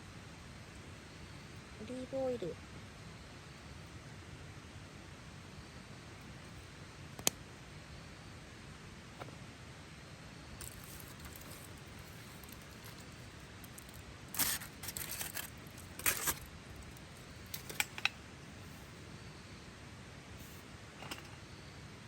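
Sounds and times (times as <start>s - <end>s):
metal cooking gear clinking: 10.6s - 18.1s.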